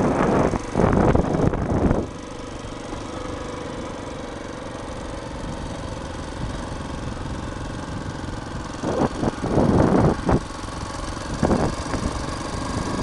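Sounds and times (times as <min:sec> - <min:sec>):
engine running: 0:00.0 - 0:13.0
noisy engine surges: 0:00.0 - 0:13.0.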